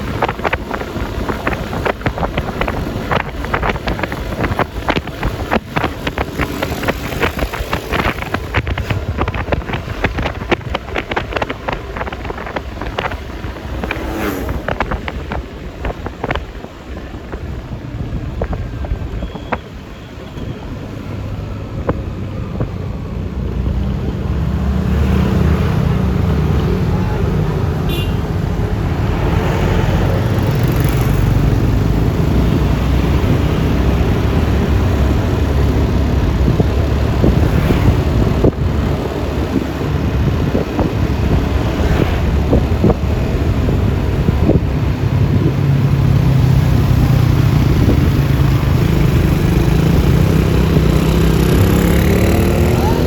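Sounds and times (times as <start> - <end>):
passing vehicle engines: 0.0 - 53.0
wind and road noise: 0.0 - 53.0
scooter engine running: 43.1 - 53.0.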